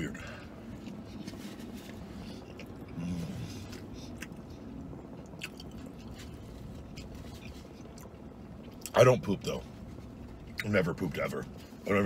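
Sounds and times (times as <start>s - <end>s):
low hum: 0.0s - 12.0s
man chewing food: 0.4s - 8.9s.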